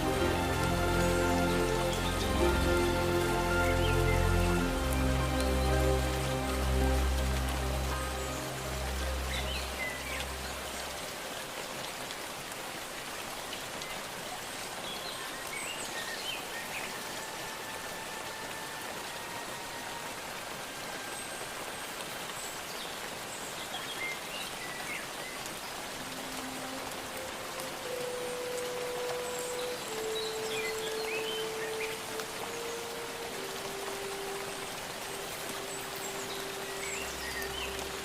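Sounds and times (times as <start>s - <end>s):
low sustained music notes: 0.0s - 12.0s, 25.1s - 38.0s
steady rain patter: 0.0s - 38.0s.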